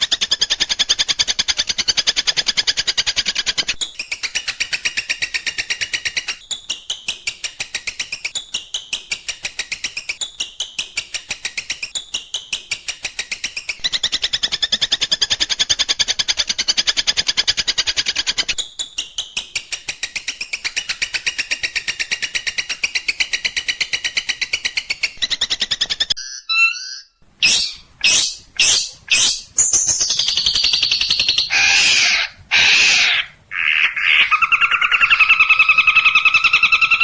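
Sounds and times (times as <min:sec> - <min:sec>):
bird chattering trill: 0:26.2 - 0:37.0
harsh bird calls: 0:26.2 - 0:37.0.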